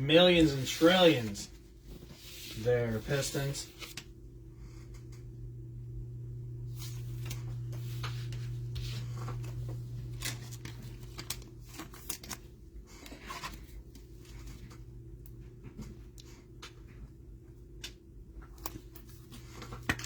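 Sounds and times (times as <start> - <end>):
steady low hum: 0.0 - 20.0
card packaging rustles and clicks: 6.8 - 14.8, 17.8 - 20.0.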